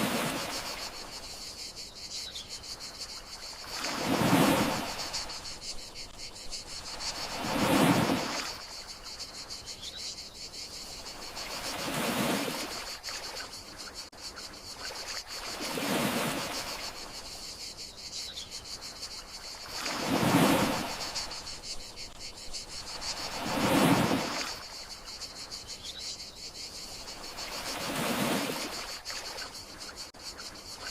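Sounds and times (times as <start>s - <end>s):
sea waves washing ashore: 0.0s - 1.3s, 3.1s - 5.8s, 6.8s - 9.1s, 11.0s - 13.5s, 14.8s - 17.2s, 19.5s - 25.1s, 27.1s - 29.6s
crickets chirring: 0.0s - 30.9s.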